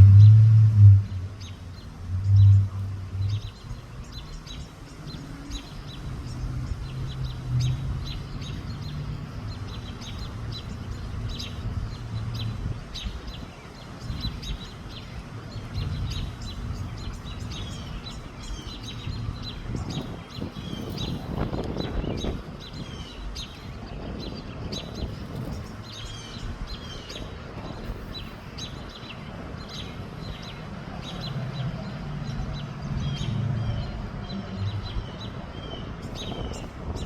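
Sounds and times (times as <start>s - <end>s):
low rumble: 0.0s - 37.0s
small birds chirping: 1.1s - 37.0s.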